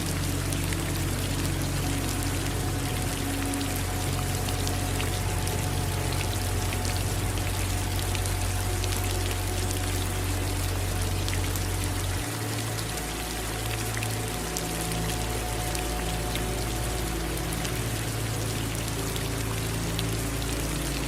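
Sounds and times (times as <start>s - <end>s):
low steady drone: 0.0s - 21.0s
steady rain: 0.0s - 21.0s.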